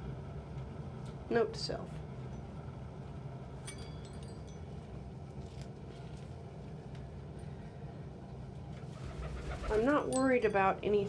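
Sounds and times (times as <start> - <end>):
low background hum: 0.0 - 11.0
faint high clinks: 3.6 - 5.1.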